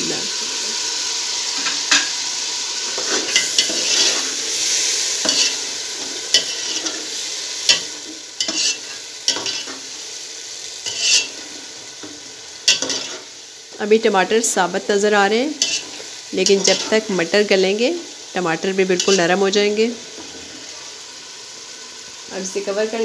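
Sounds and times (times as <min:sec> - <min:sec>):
food sizzling in hot oil: 0:00.0 - 0:23.0
metal ladle scraping a pot: 0:02.9 - 0:04.4, 0:05.2 - 0:05.6, 0:07.7 - 0:09.8, 0:10.8 - 0:11.4, 0:15.6 - 0:17.0.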